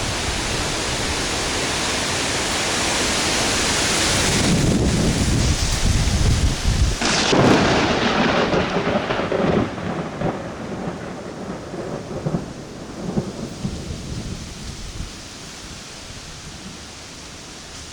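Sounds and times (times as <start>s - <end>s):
heavy rain hissing: 0.0s - 17.9s
thunderclap rumbling: 4.1s - 17.4s.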